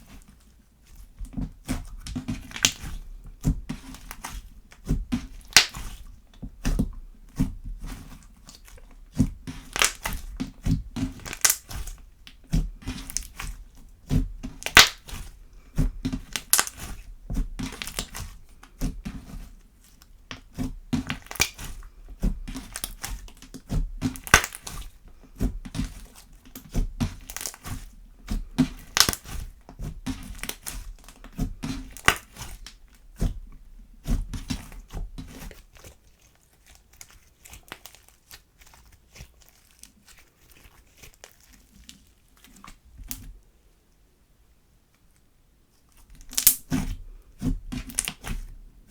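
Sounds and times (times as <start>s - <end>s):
air pockets popping in slime: 2.1s - 2.9s, 5.2s - 5.8s, 9.5s - 12.0s, 12.8s - 15.1s, 16.0s - 16.8s, 21.0s - 21.6s, 24.0s - 24.8s, 28.6s - 29.3s, 29.9s - 32.5s, 46.1s - 46.8s
slime being squeezed: 2.4s - 2.9s, 5.3s - 5.8s, 9.6s - 10.2s, 11.1s - 11.8s, 12.9s - 13.4s, 14.5s - 15.1s, 16.2s - 16.8s, 24.1s - 24.7s, 28.8s - 29.3s, 31.8s - 32.4s, 46.2s - 46.8s.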